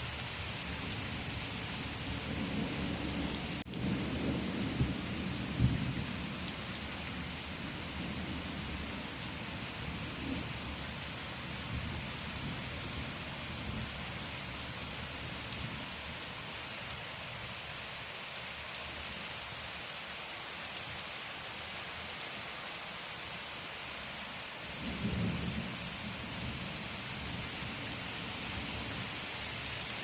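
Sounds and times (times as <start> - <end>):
steady rain: 0.0 - 30.0
low thunder rumble: 2.0 - 6.3.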